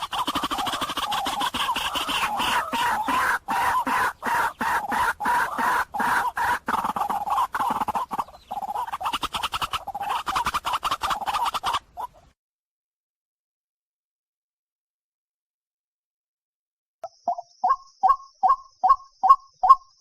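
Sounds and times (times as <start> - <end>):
bird harsh croaking calls: 0.0 - 12.4, 17.1 - 20.0.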